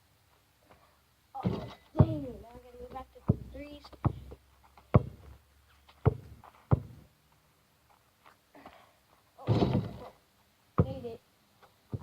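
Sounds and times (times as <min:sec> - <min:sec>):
basketball bouncing: 0:01.4 - 0:05.3, 0:06.0 - 0:07.0, 0:09.5 - 0:10.1, 0:10.8 - 0:11.2.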